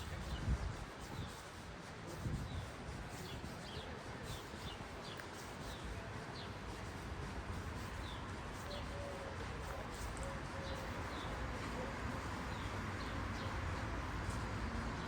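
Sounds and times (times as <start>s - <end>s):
outdoor background murmur: 0.0s - 15.0s
small birds chirping: 2.4s - 7.0s, 7.6s - 11.6s.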